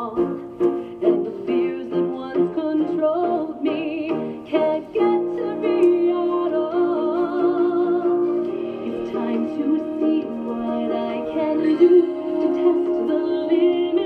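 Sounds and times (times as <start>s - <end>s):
woman singing: 0.0s - 0.4s, 1.0s - 14.0s
ukulele strumming: 0.0s - 14.0s.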